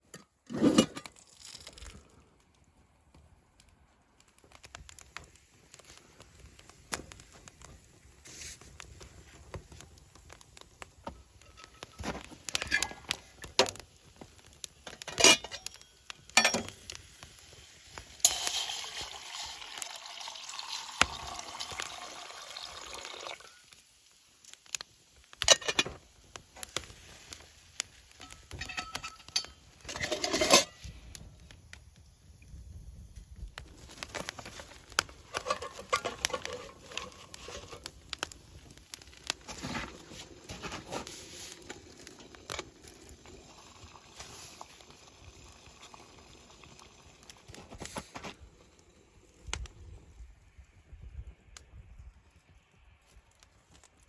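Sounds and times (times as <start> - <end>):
steady hiss: 3.8 - 54.0
metal utensils clicking and knocking: 14.9 - 15.8, 16.4 - 16.8, 28.2 - 30.8, 35.3 - 37.8.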